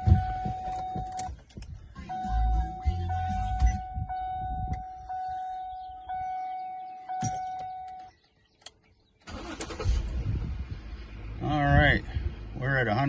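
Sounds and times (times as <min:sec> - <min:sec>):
car door-ajar warning chime: 0:00.0 - 0:01.4, 0:02.1 - 0:08.3
low rumbling noise: 0:09.6 - 0:13.0.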